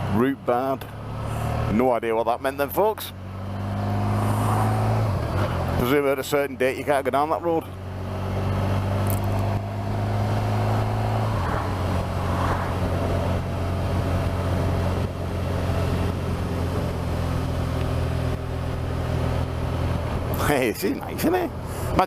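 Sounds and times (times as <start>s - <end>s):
motorcycle engine running: 3.1s - 22.0s
wind noise: 10.6s - 17.1s.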